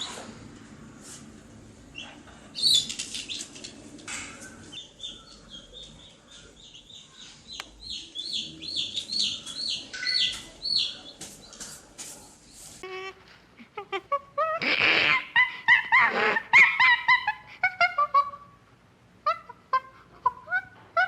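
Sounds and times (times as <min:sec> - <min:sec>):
bird chirping: 0:01.9 - 0:03.6, 0:04.2 - 0:12.7.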